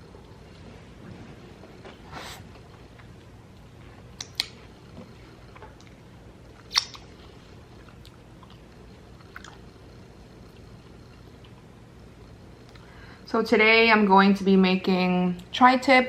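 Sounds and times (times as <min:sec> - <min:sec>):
close-up chewing with crunches: 0:05.5 - 0:09.8.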